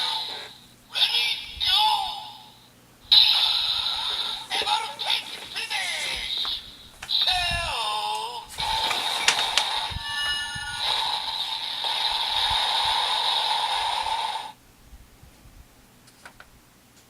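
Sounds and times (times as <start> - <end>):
electronic hiss with held tone: 0.0 - 15.2
electronic beeping tones: 9.1 - 11.6.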